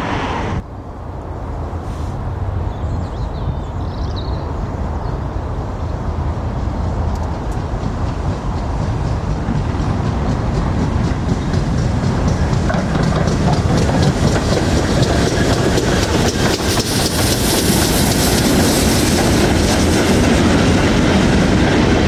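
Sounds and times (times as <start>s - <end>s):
train rumble: 0.0s - 22.0s
train wheels clicking over rail joints: 5.9s - 22.0s.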